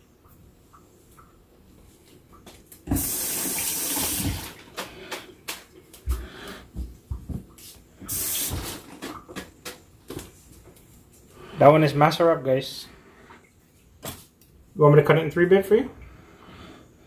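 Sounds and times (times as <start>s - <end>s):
kitchen tap running: 2.8s - 6.2s, 7.6s - 9.8s.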